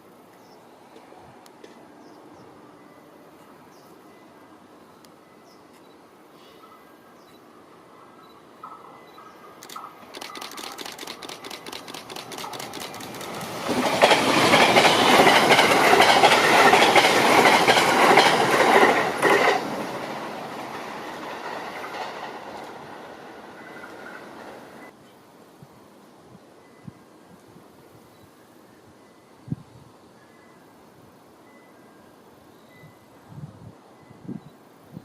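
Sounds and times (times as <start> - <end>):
train passing: 0.0 - 25.0
wheels clicking over rail joints: 8.6 - 24.8.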